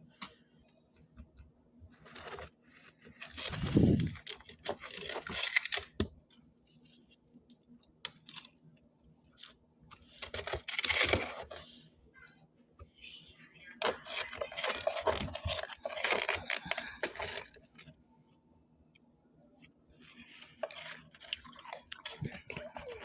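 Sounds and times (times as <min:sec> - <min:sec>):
frost crunching: 0:02.0 - 0:06.0, 0:10.1 - 0:11.6, 0:13.8 - 0:17.9, 0:20.1 - 0:23.0.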